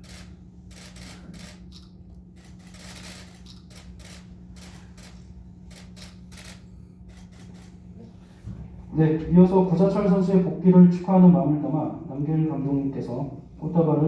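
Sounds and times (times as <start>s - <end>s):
camera shutters clicking: 0.0s - 7.8s
low steady hum: 0.0s - 14.0s.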